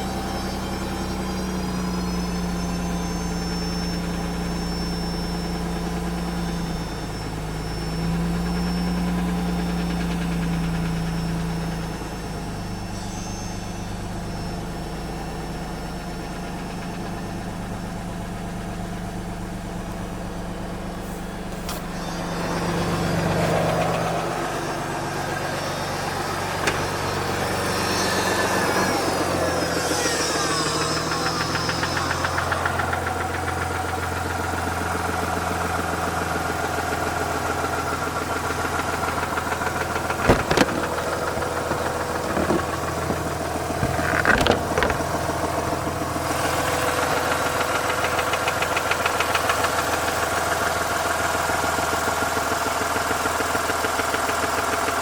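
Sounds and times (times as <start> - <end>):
rotary engine knocking: 38.3 - 46.6.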